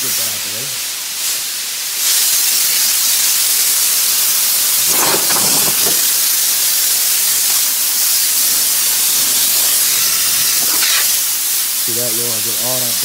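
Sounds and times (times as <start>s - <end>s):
high-pitched spraying hiss: 0.0s - 13.0s
clatter: 4.8s - 6.2s.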